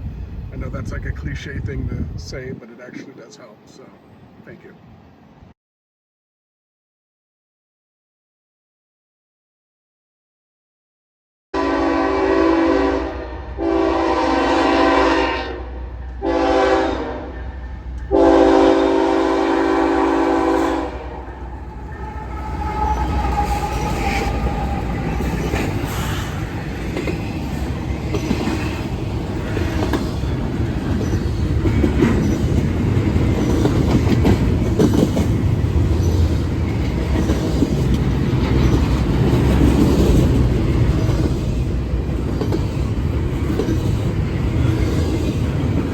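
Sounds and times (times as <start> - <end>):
train low rumble: 0.0 - 5.5, 11.6 - 45.9
locomotive air horn: 11.6 - 25.3
train wheels clattering: 20.2 - 45.9.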